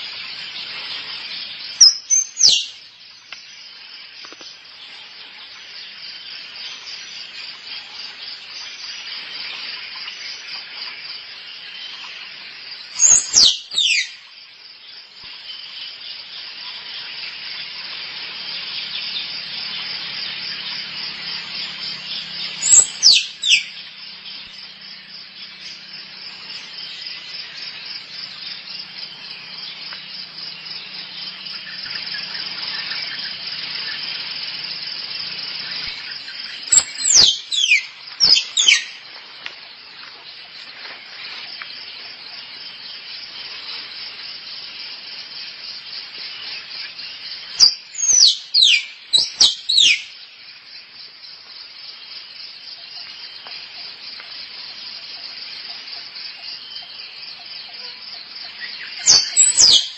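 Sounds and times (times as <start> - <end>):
squirrel calls squeaking: 1.8 - 2.7, 13.0 - 14.2, 22.6 - 23.7, 36.7 - 38.9, 47.6 - 50.0, 59.1 - 59.9.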